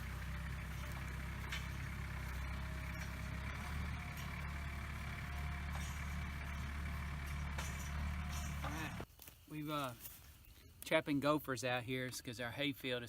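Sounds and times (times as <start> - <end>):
utility vehicle engine running: 0.0 - 9.1.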